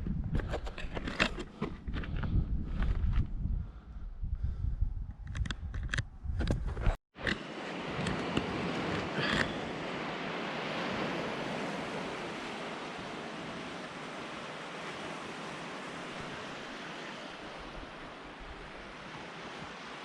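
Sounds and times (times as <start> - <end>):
sea waves breaking on shore: 7.2 - 20.0.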